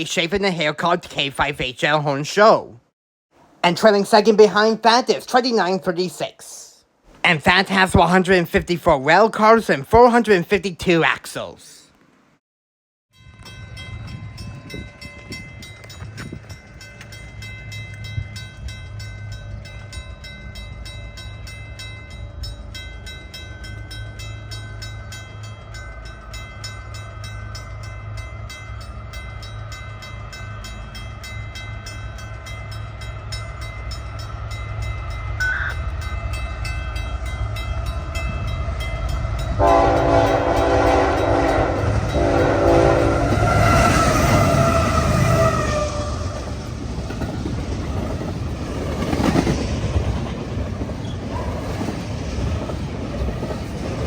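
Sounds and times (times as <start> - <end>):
diesel freight train rumbling: 3.4 - 11.6, 13.2 - 54.0
locomotive horn blasts: 35.4 - 35.9, 39.5 - 46.5.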